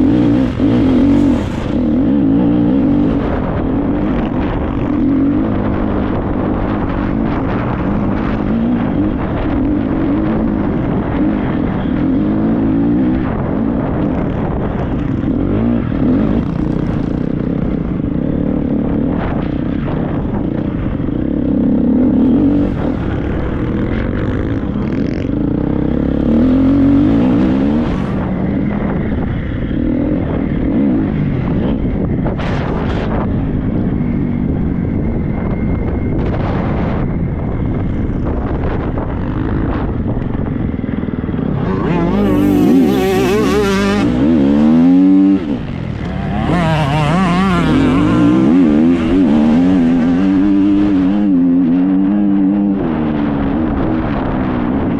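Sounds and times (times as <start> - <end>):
motocross bike engine revving: 0.0 - 19.0, 21.5 - 33.2, 41.0 - 52.7
wind noise on microphone: 0.0 - 54.9.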